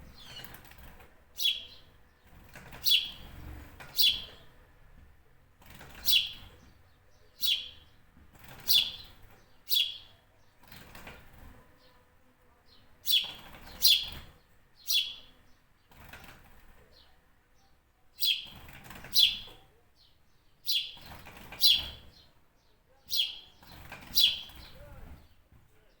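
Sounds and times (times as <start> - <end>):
bird giving sharp high calls: 24.1 - 24.8.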